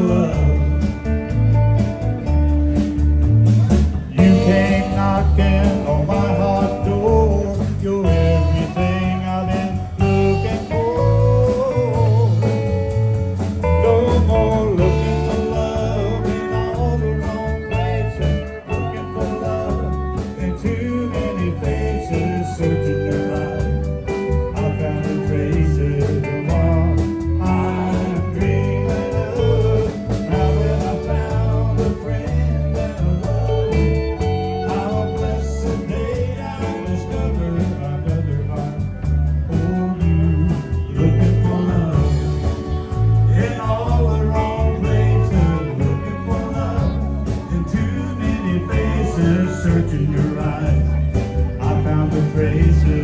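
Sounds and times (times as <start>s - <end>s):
country band playing: 0.0s - 53.0s
electric lead guitar: 0.0s - 53.0s
fiddle: 14.8s - 37.5s, 38.3s - 53.0s.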